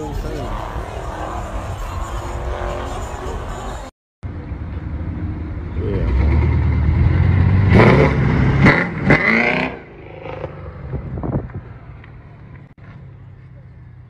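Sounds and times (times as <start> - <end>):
car engine revving: 5.1 - 11.4.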